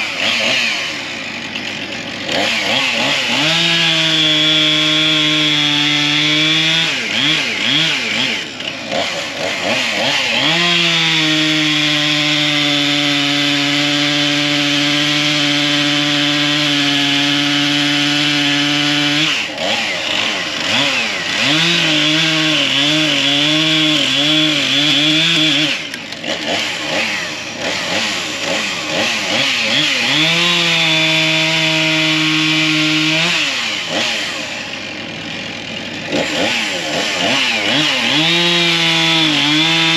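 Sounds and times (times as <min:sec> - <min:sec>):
chainsaw cutting logs: 0:00.0 - 0:39.9.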